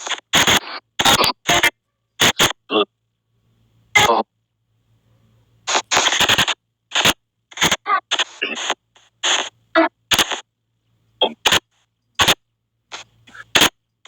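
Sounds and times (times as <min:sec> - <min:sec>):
chopped bursts of hiss: 0:00.0 - 0:02.6, 0:05.7 - 0:10.4, 0:11.4 - 0:13.7
clipped voice-like fragments: 0:10.1 - 0:10.4, 0:12.2 - 0:13.7.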